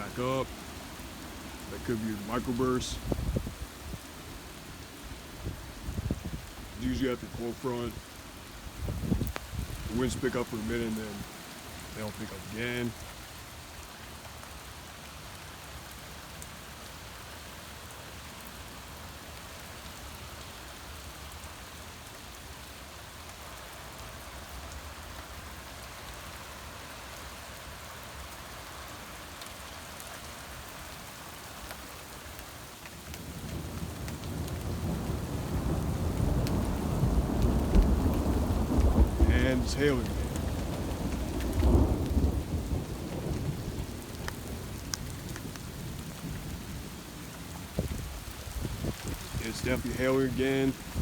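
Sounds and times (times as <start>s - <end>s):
heavy rain: 0.0s - 51.0s
low rumble of thunder: 0.9s - 8.1s, 8.7s - 13.0s, 33.2s - 50.0s, 50.7s - 51.0s.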